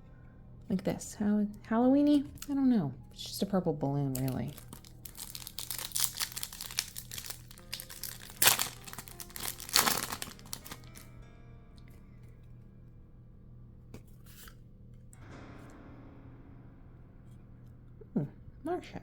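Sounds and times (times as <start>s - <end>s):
foil wrapper crinkling: 4.1s - 11.1s
wrapper ripping: 4.1s - 11.1s.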